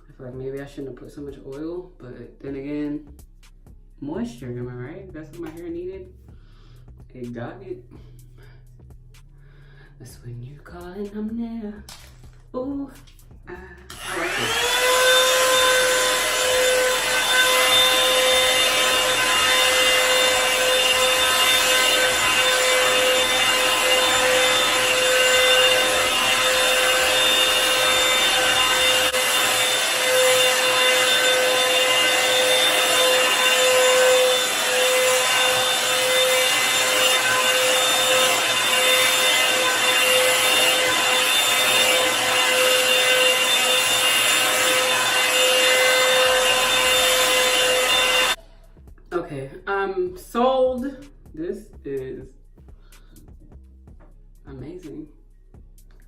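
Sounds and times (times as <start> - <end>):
hair dryer brush running: 13.8 - 48.4.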